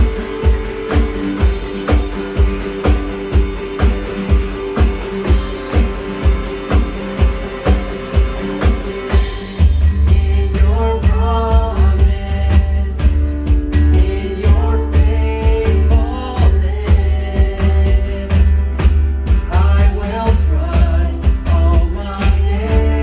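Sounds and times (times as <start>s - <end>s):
band playing: 0.0s - 12.4s
person singing: 0.0s - 18.6s, 19.3s - 23.0s
guitar: 0.0s - 23.0s
kick drum beat: 0.0s - 23.0s.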